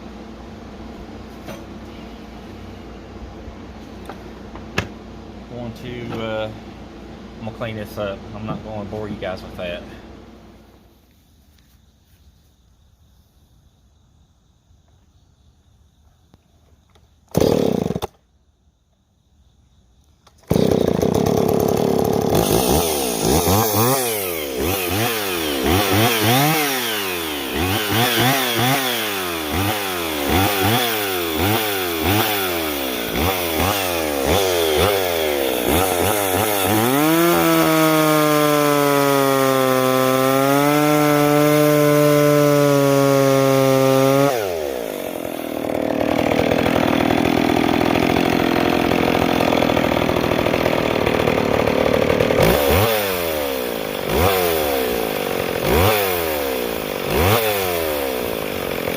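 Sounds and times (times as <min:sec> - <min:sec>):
chainsaw revving: 0:17.3 - 0:18.2, 0:20.4 - 0:58.9.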